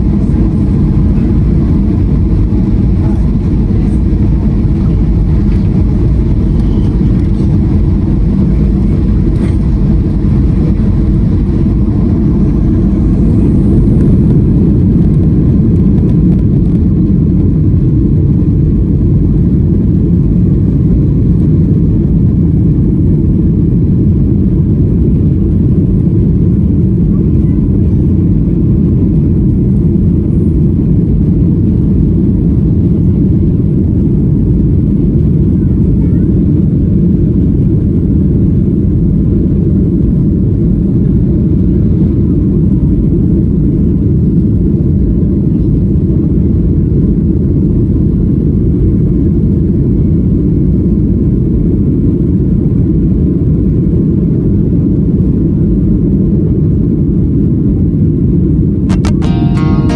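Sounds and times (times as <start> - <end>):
airflow around fuselage: 0.0 - 22.7
jet engines rumbling: 0.0 - 59.2.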